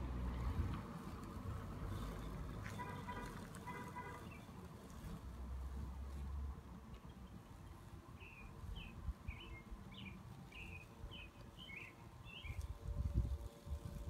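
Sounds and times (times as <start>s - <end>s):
bird chirping: 7.0s - 12.7s.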